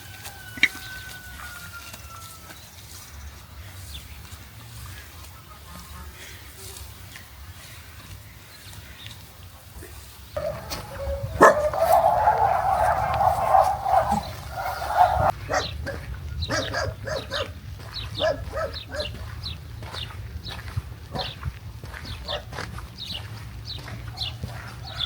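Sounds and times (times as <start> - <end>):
dogs barking and yapping: 10.4 - 19.3, 21.1 - 21.5, 22.1 - 22.7, 23.8 - 25.0.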